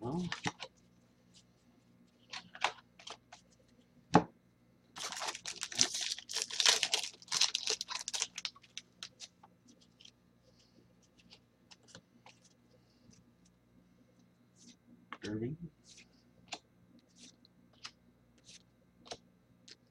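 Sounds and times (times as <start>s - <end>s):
wrapper tearing and crinkling: 5.0s - 9.3s.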